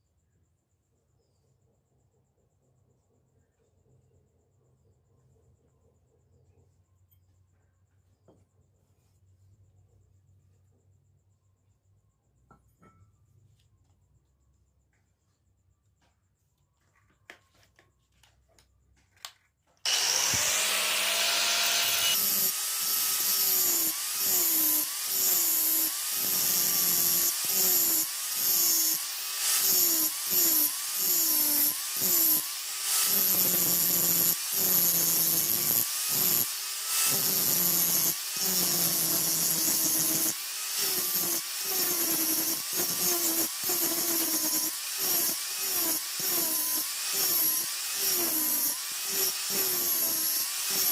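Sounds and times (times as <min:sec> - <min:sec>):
electric grinder on steel: 0:19.9 - 0:50.9.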